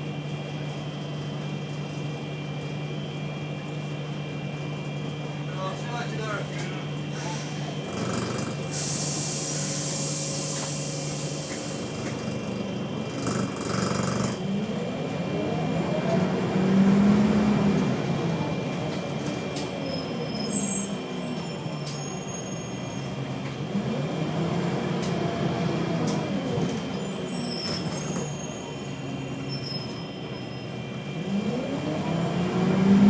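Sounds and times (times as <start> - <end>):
bus engine buzzing and revving: 7.5 - 33.0
hiss of released air: 8.7 - 11.9.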